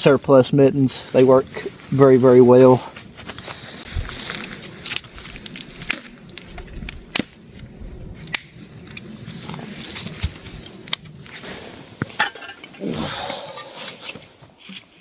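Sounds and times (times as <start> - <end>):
rustling handling noises: 1.0 - 12.7
sharp clicks and snaps: 8.3 - 9.1.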